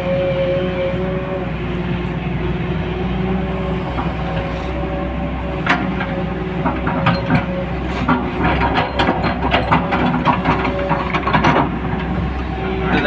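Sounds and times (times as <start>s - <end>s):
diesel engine running: 0.0s - 13.0s
sharp knocks and clatters: 5.6s - 12.2s.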